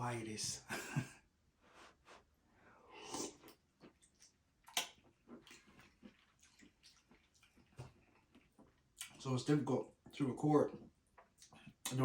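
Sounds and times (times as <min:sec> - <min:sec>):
person chewing food: 0:02.8 - 0:09.2, 0:10.7 - 0:12.0.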